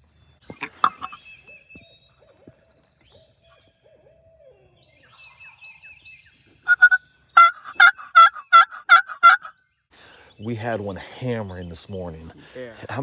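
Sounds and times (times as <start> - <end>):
faint owl hooting: 6.7 - 9.5
turkey yelps: 6.7 - 9.5.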